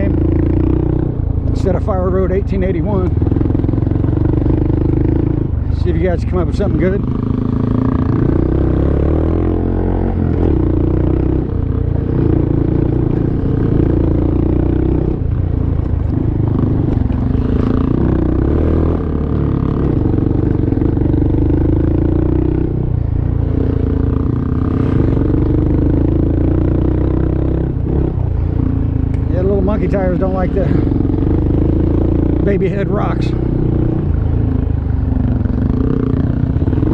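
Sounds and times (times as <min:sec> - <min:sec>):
motorbike engine running: 0:00.0 - 0:36.9.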